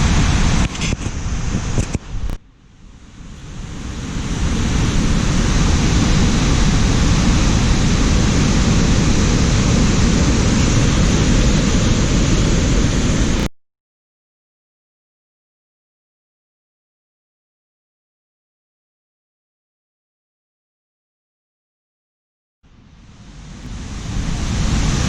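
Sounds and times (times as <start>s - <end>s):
waterfall rushing: 3.0s - 13.5s, 23.2s - 25.0s.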